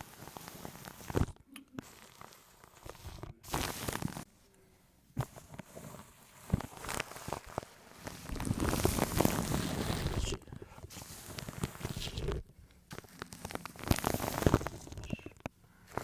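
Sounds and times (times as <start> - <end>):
scratching on microphone: 0.0 - 4.3, 5.2 - 16.0.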